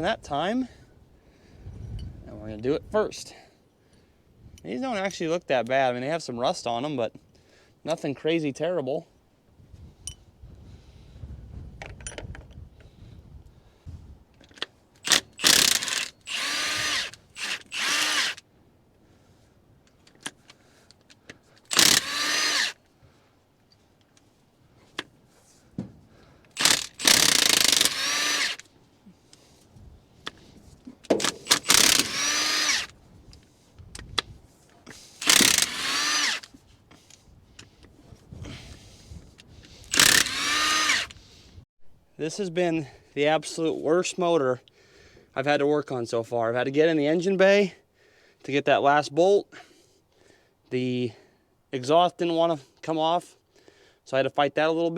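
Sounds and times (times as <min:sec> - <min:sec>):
power driver motor whining: 0:15.0 - 0:18.4, 0:21.7 - 0:22.8, 0:26.5 - 0:28.7, 0:31.2 - 0:33.0, 0:35.2 - 0:36.5, 0:39.8 - 0:41.2.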